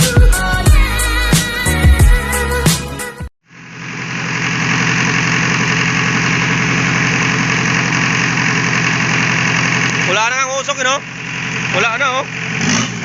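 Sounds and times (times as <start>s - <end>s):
diesel engine idling: 3.5s - 13.0s.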